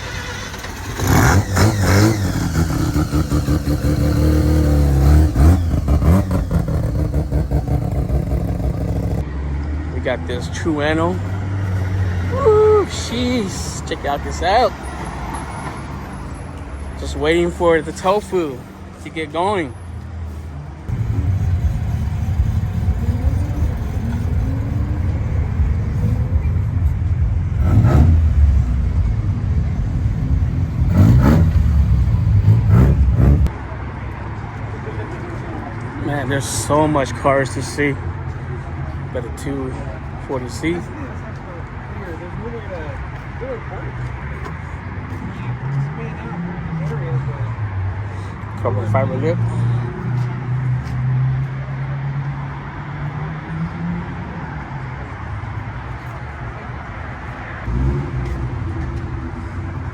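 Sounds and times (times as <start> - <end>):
car engine revving: 0.0 - 9.3, 20.9 - 33.6, 57.6 - 59.9.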